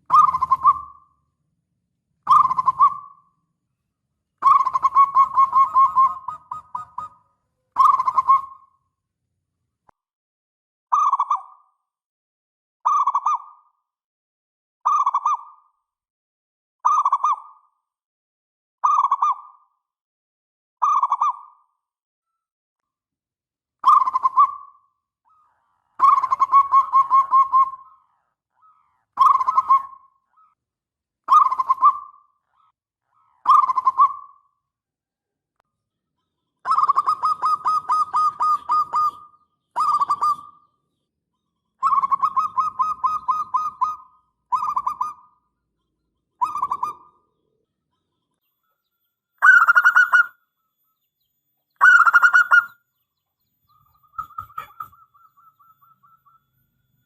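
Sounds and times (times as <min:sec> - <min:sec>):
dove cooing: 0:00.0 - 0:01.1, 0:02.3 - 0:03.2, 0:04.4 - 0:08.6, 0:25.3 - 0:30.5, 0:36.7 - 0:40.6, 0:41.8 - 0:45.3, 0:46.4 - 0:47.1, 0:49.4 - 0:50.4, 0:51.8 - 0:52.8, 0:54.1 - 0:56.4.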